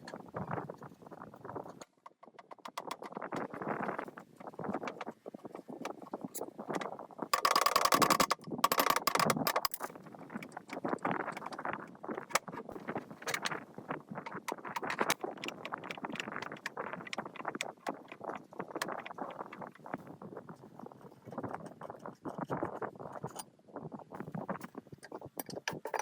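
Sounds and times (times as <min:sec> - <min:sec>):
metal parts clinking and scraping: 0:07.4 - 0:09.9.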